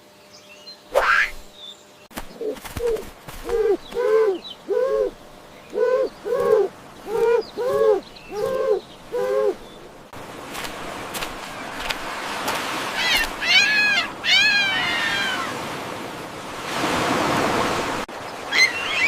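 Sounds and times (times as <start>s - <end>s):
bird hooting calls: 2.2s - 10.0s, 12.9s - 15.6s.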